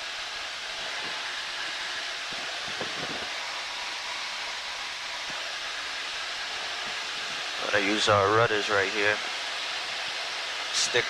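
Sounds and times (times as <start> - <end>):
airplane engine and airflow hiss: 0.0 - 11.0.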